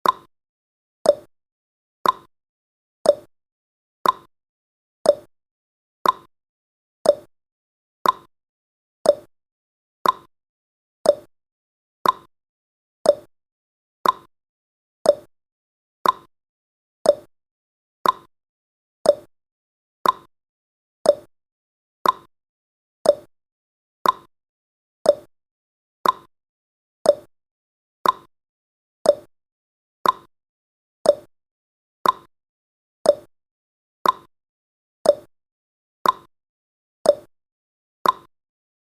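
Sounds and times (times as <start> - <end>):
clock ticking: 2.0 - 2.3, 4.0 - 4.3, 6.0 - 6.3, 8.0 - 8.3, 10.0 - 10.3, 12.0 - 12.3, 14.0 - 14.3, 15.1 - 15.3, 16.0 - 16.3, 18.0 - 18.3, 20.0 - 20.3, 21.1 - 21.3, 22.0 - 22.3, 24.0 - 24.3, 26.0 - 26.3, 28.0 - 28.3, 29.1 - 29.3, 30.0 - 30.3, 31.1 - 31.3, 32.0 - 32.3, 33.1 - 33.3, 34.0 - 34.3, 35.1 - 35.3, 36.0 - 36.3, 38.0 - 38.3.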